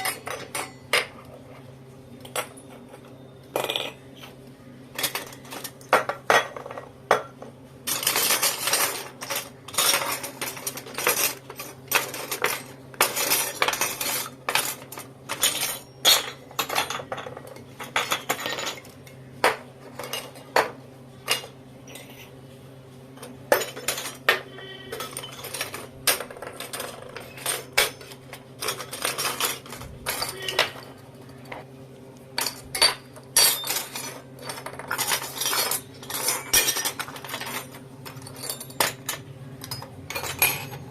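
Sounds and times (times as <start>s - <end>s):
toy dishes clinking: 0.0s - 1.5s, 2.2s - 22.3s, 23.2s - 31.7s, 32.4s - 40.9s
faint steady hum: 0.0s - 40.9s.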